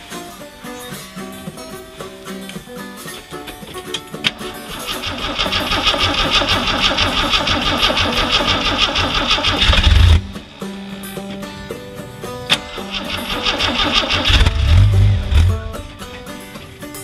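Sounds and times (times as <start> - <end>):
starter cranking engine: 3.2 - 17.0.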